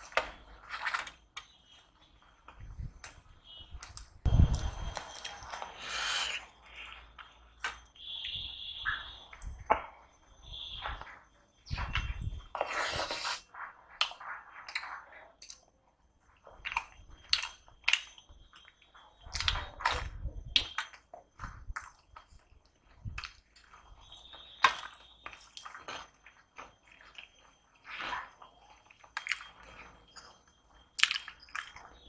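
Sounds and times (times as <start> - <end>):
man chewing food: 0.0 - 32.0.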